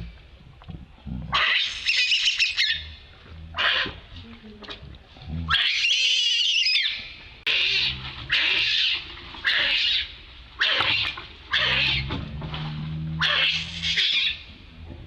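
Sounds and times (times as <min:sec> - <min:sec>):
young monkey screaming: 0:01.3 - 0:02.9, 0:05.5 - 0:12.1, 0:13.2 - 0:14.4.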